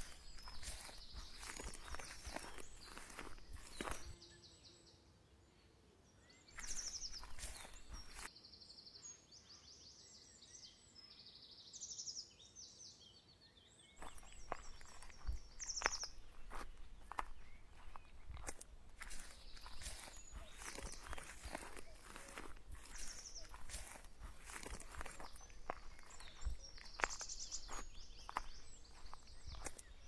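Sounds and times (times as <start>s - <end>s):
footsteps in grass: 0.0s - 4.2s, 6.6s - 8.3s, 14.0s - 30.0s
small birds singing: 0.0s - 30.0s.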